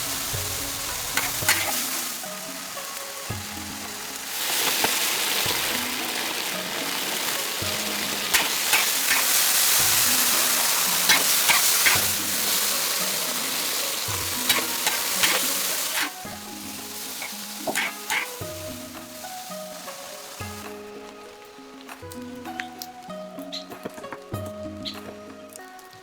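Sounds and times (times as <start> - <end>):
food sizzling in a hot pan: 0.0 - 26.0
utensil scraping against pan: 1.2 - 1.8, 8.3 - 9.8, 11.0 - 12.2, 14.4 - 16.1, 17.2 - 18.4.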